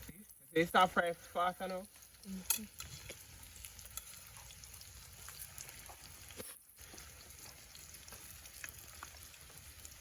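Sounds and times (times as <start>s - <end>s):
food frying in hot oil: 0.0s - 10.0s.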